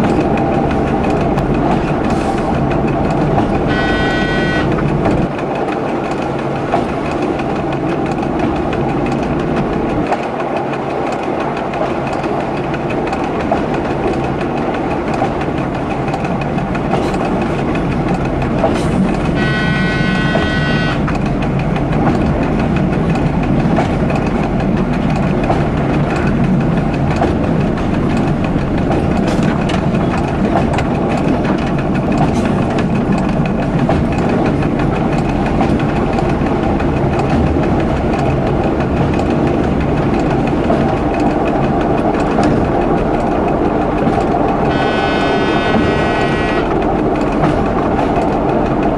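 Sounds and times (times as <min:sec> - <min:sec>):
train rumbling: 0:00.0 - 0:48.9
wheels clattering over rails: 0:00.0 - 0:48.9
train horn: 0:03.6 - 0:04.8, 0:19.3 - 0:21.1, 0:44.7 - 0:46.8.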